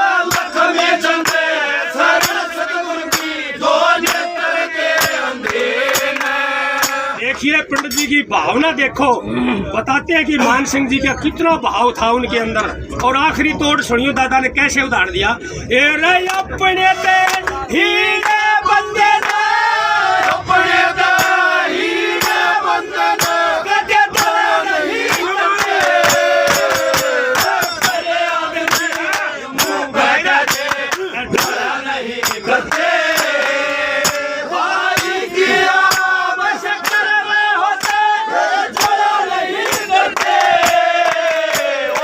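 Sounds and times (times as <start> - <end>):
sharp drum strokes: 2.1 - 3.4.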